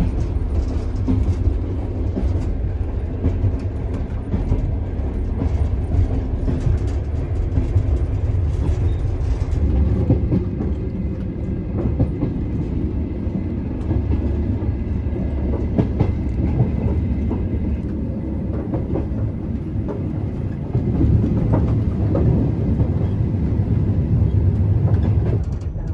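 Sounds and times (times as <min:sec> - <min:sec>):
train rumbling on rails: 0:00.0 - 0:25.9.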